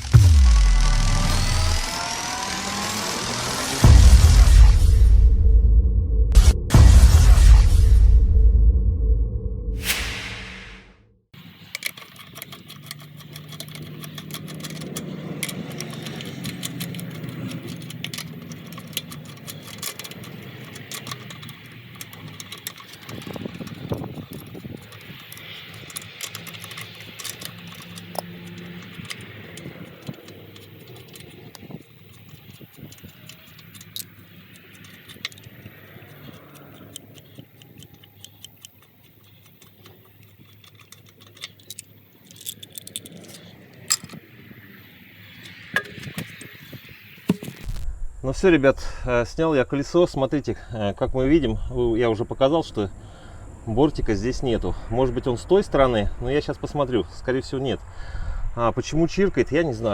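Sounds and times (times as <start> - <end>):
metallic clinks of hand tools: 11.7 - 44.2.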